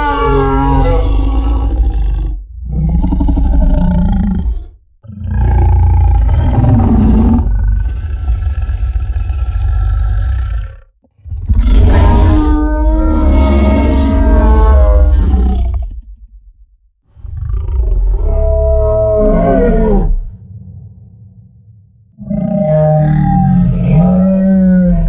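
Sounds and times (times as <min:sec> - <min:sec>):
deep monster roars: 0:00.0 - 0:16.6, 0:17.2 - 0:25.0
heavy low rumble: 0:19.0 - 0:22.4.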